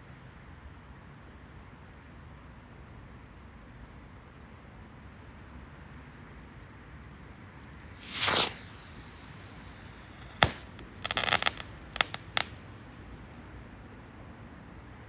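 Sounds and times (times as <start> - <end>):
firework crackling: 7.8 - 12.6
firework whoosh falling in pitch: 7.9 - 12.6
firework bangs: 8.0 - 12.6.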